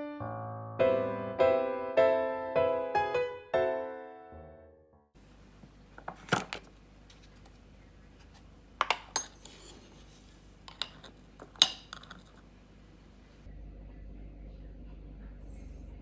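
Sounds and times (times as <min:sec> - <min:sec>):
kitchenware clinking and knocking: 0:08.8 - 0:10.0, 0:10.7 - 0:12.4.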